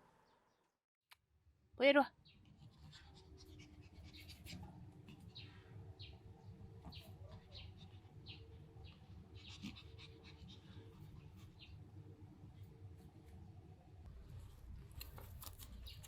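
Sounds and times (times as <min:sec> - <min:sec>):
dog panting: 0:02.3 - 0:05.5, 0:06.8 - 0:11.8.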